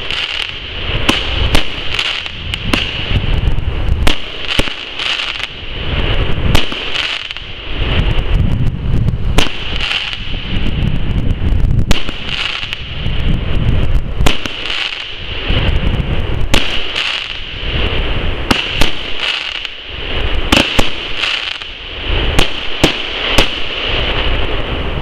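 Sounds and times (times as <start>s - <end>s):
fireworks bangs: 0.0s - 25.0s
fireworks hiss: 0.0s - 25.0s.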